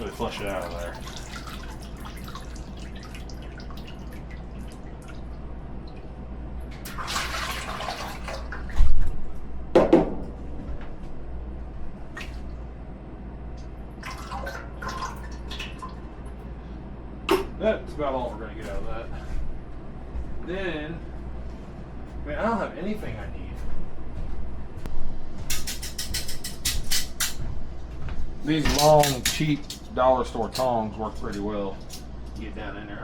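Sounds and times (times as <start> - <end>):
steady low hum: 0.0 - 33.0
oil pouring into a bucket: 6.8 - 8.5.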